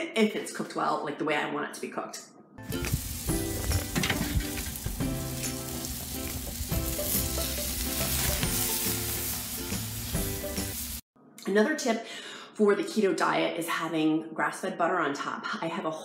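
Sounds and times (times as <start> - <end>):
steak sizzling on a grill: 2.6 - 11.0.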